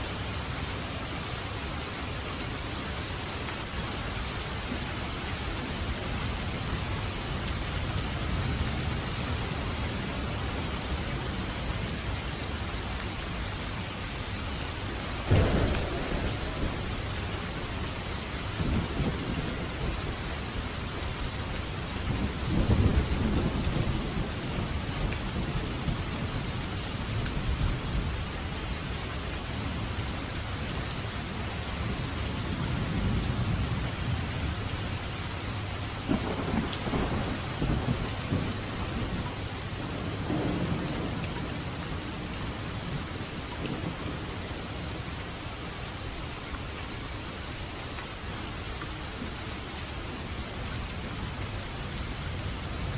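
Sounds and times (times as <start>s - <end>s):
heavy rain on a roof: 0.0s - 52.9s
thunder rumbling: 15.2s - 29.9s, 36.0s - 45.0s.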